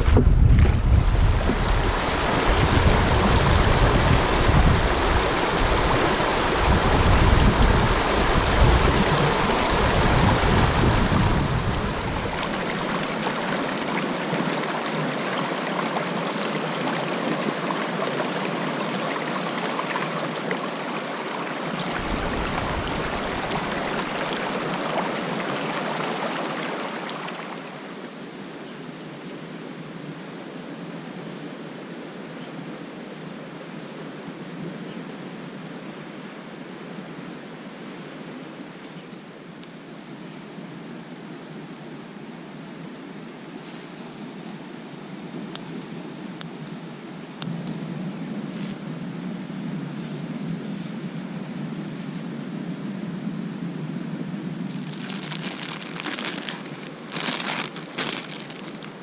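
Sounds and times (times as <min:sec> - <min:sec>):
wind buffeting microphone: 0:00.0 - 0:13.2, 0:21.9 - 0:24.8
rushing water: 0:00.0 - 0:30.9, 0:53.6 - 0:59.0.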